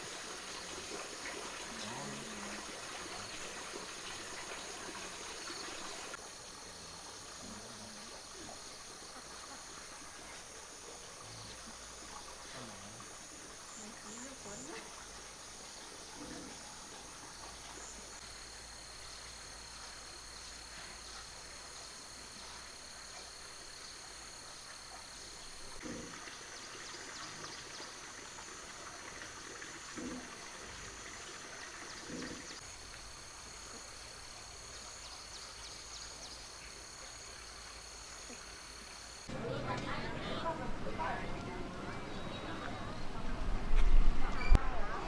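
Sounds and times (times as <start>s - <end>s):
faint hiss: 0.0s - 45.0s
insects chirring: 0.0s - 45.0s.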